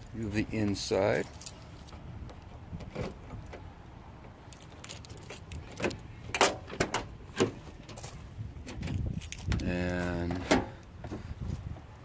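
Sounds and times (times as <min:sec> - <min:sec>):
keys jangling: 0:04.5 - 0:05.8, 0:08.9 - 0:09.8.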